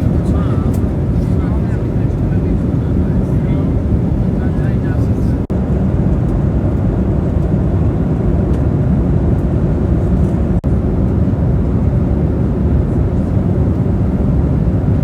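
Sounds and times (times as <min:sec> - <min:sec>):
jet airliner noise: 0:00.0 - 0:15.0.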